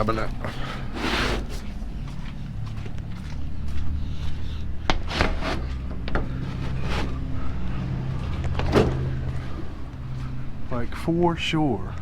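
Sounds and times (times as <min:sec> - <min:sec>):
engine idling: 0:05.6 - 0:12.0.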